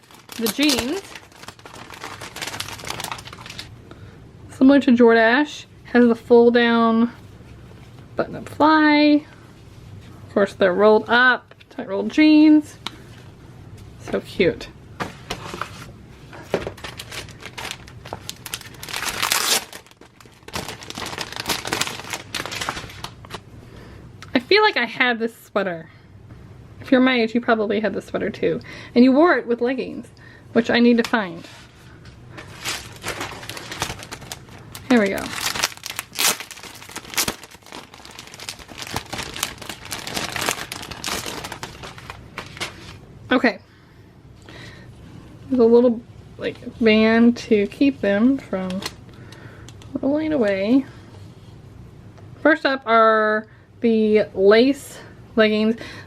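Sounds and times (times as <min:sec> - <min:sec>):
packaging crinkling and rustling: 0:00.0 - 0:03.7, 0:15.0 - 0:23.5, 0:32.3 - 0:43.0.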